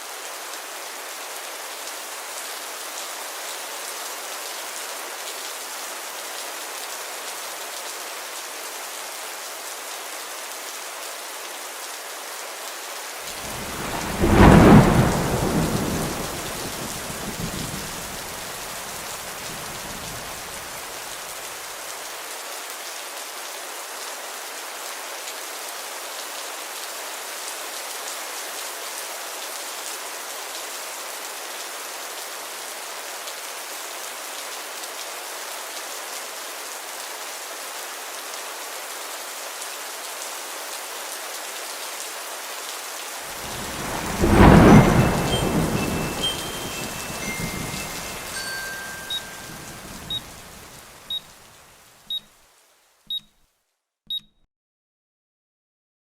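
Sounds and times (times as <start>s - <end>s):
rain hiss: 0.0s - 53.0s
thunderclap: 13.3s - 20.9s, 43.3s - 50.8s.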